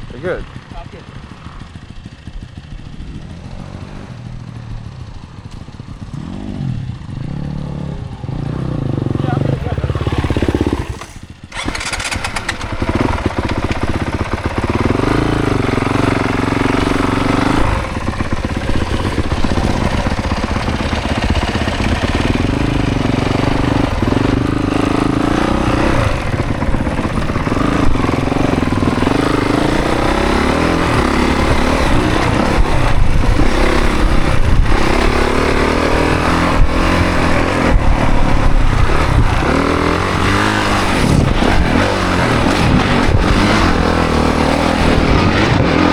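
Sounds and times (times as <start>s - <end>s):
dirt bike engine revving: 0.2s - 45.9s.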